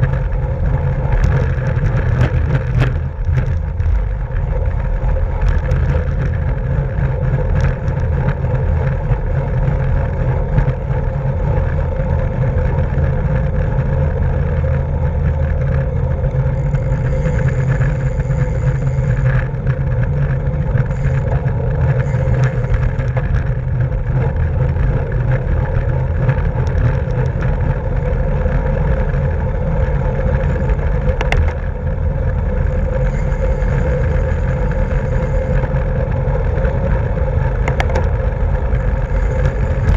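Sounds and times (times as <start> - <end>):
bicycle tyre and road noise: 0.0 - 39.9
wind on microphone: 0.0 - 39.9
faint ticks: 12.6 - 29.2.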